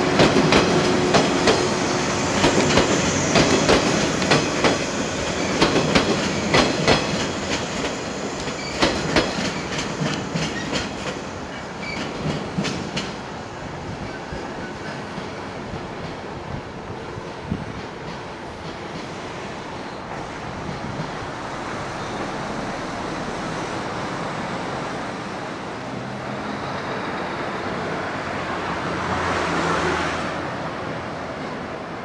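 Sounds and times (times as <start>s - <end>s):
broad rushing swell: 0.0s - 10.4s, 18.0s - 30.6s
electric train running away: 0.0s - 31.0s.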